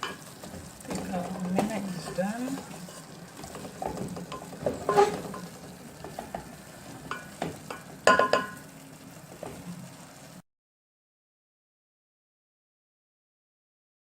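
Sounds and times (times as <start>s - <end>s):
metal spoon scraping a pan: 0.0s - 8.6s
light sizzle: 0.0s - 10.4s.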